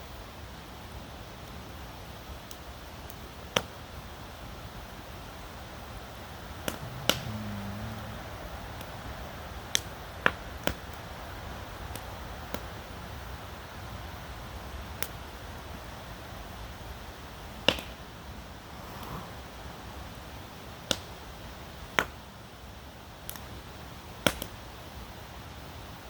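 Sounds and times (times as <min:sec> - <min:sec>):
steady background hiss: 0:00.0 - 0:26.0
campfire crackling: 0:01.4 - 0:22.1.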